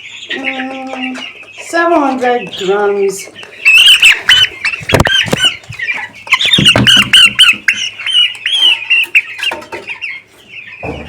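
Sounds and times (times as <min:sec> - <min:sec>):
chicks peeping in distress: 0:00.0 - 0:11.0.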